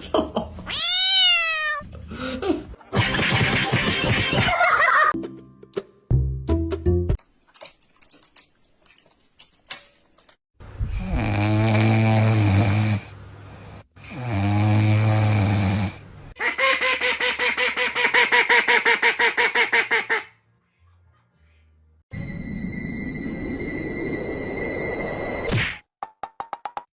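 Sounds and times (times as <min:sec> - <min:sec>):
loud snoring: 0:10.9 - 0:16.0.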